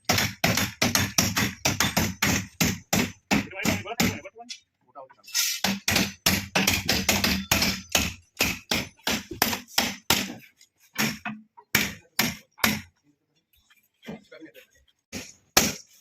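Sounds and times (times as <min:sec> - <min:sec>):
hammer striking shuttering: 0:05.6 - 0:10.4.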